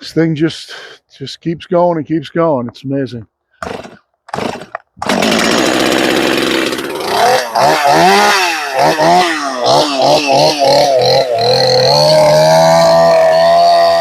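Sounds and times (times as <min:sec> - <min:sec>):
chainsaw starting and revving: 0:03.6 - 0:14.0.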